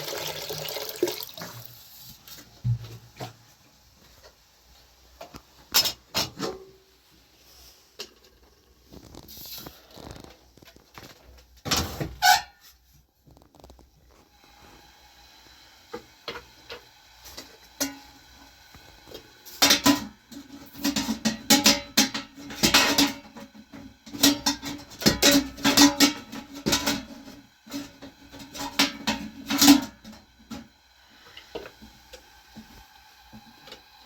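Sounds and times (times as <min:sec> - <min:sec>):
metal utensil scraping a pot: 0:19.6 - 0:30.2.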